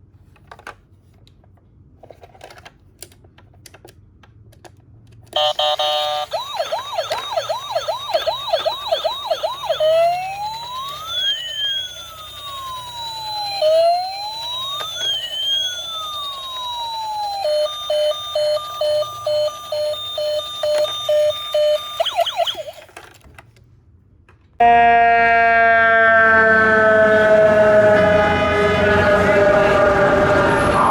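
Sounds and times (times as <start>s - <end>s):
toy electronic siren: 5.4s - 23.0s, 24.6s - 30.9s
steady falling tone: 5.5s - 22.7s, 24.6s - 30.9s.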